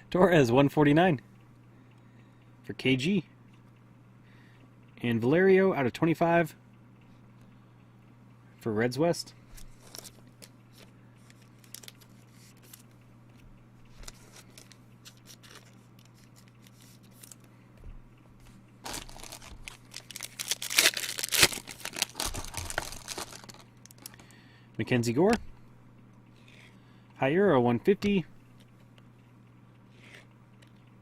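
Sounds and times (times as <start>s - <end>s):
wrapper tearing and crinkling: 11.4s - 12.7s, 14.0s - 17.5s, 18.8s - 24.2s.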